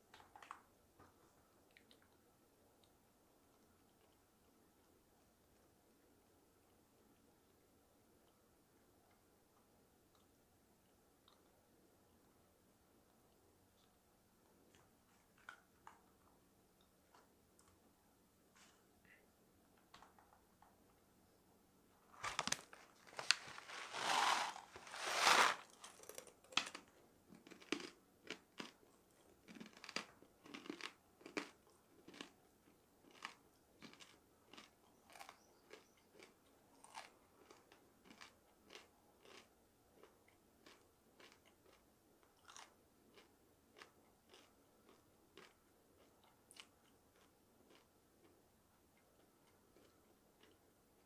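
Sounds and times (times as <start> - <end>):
crunchy chewing: 22.2 - 48.4, 49.2 - 50.6.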